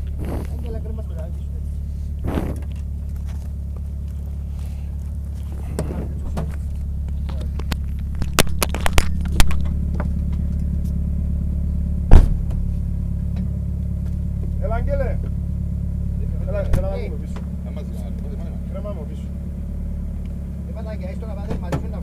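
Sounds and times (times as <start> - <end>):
car engine idling: 0.0 - 22.0
sharp clicks and knocks: 5.7 - 10.7.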